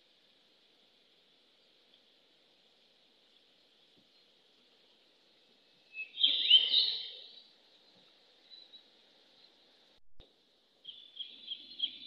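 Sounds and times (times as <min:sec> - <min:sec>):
birds chirping: 0:05.9 - 0:07.5, 0:10.8 - 0:12.0.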